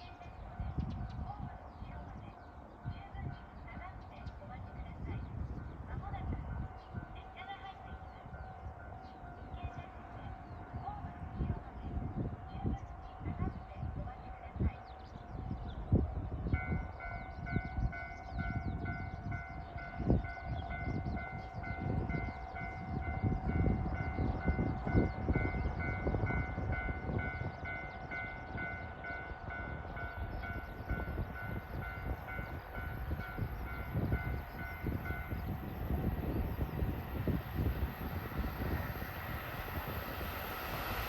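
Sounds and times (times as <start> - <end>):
train passing with rumble: 0.0 - 41.0
railway crossing bell ringing: 16.5 - 41.0.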